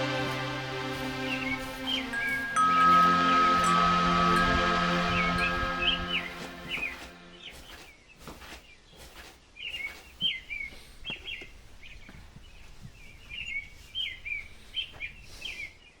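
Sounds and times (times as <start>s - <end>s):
small birds chirping: 5.1s - 16.0s.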